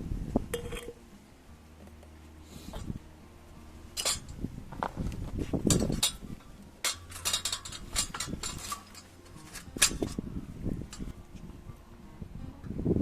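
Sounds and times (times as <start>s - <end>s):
cookware clicking and clinking: 4.0s - 4.3s, 5.7s - 10.2s.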